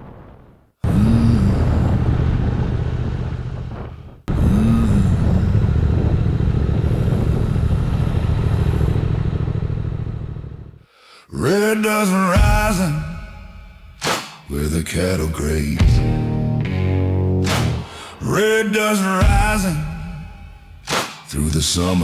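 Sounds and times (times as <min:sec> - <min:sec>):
low engine-like rumble: 0:02.4 - 0:10.8.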